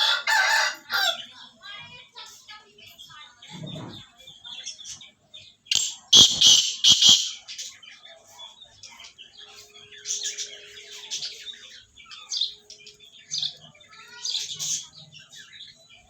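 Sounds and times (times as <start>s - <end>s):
birds chirping and chattering: 0.0s - 16.0s
harsh bird bursts: 5.7s - 7.5s.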